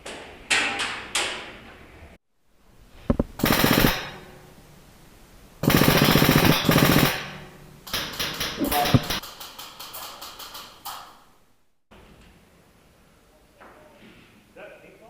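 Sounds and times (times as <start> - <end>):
airsoft gun firing bursts: 3.4 - 4.3, 5.6 - 9.3.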